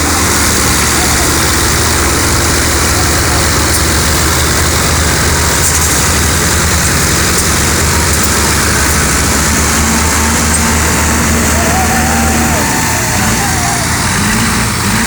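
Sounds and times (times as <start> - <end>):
heavy engine running: 0.0 - 15.0.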